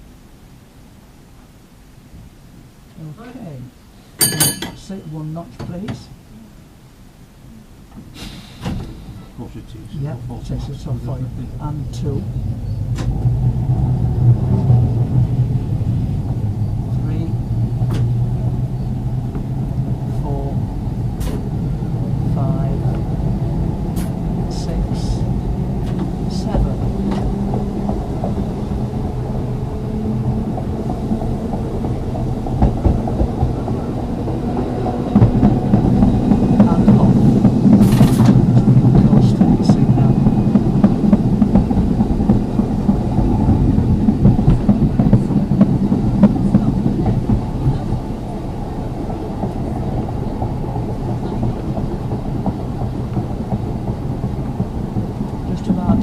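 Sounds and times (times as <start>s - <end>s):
steel wheels rumbling on rail: 3.7s - 56.0s
knocks: 17.8s - 18.2s, 30.6s - 33.8s, 34.8s - 39.4s.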